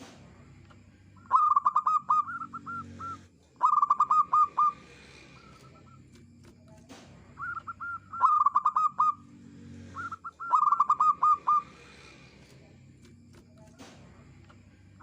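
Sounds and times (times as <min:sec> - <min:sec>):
dove cooing: 0:01.2 - 0:06.2, 0:07.4 - 0:12.2.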